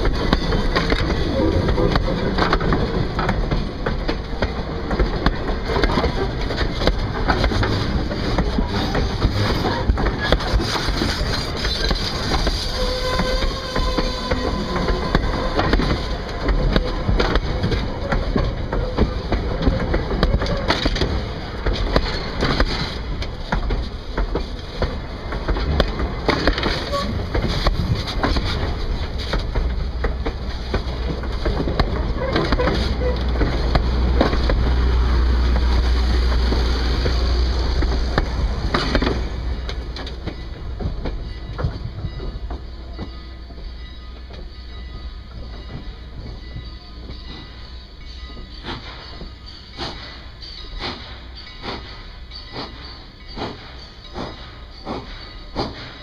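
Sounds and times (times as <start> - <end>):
train rumble: 0.0 - 56.0
train wheels clattering over rails: 0.0 - 56.0.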